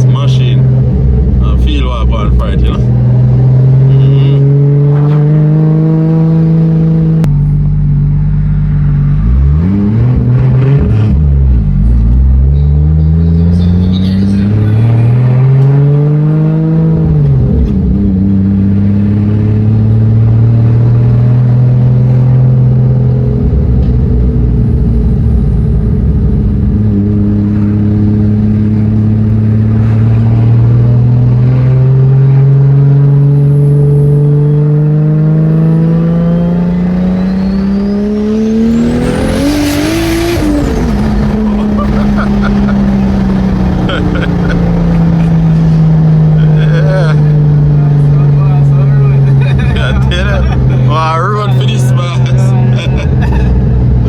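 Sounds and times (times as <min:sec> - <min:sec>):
car engine revving: 0:00.0 - 0:54.0
high whine: 0:36.6 - 0:54.0.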